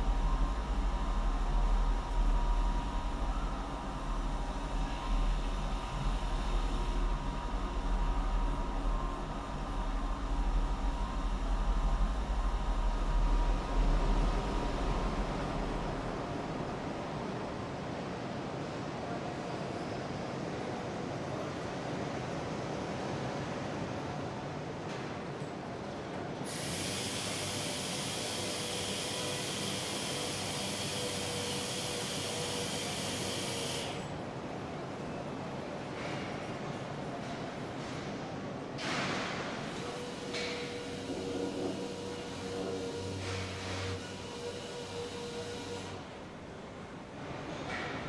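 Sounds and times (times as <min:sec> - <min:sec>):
factory machinery humming: 0:00.0 - 0:48.0
steady hiss of air: 0:26.4 - 0:34.2.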